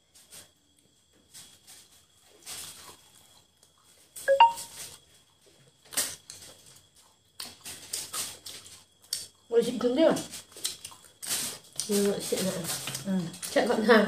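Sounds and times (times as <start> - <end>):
chewing and wet mouth noises: 10.4 - 11.9.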